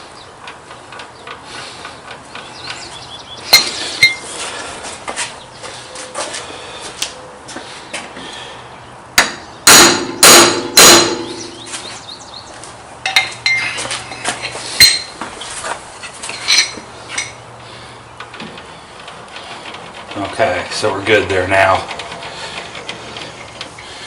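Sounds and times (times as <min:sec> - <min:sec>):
light metal clicks and knocks: 0:13.0 - 0:15.4.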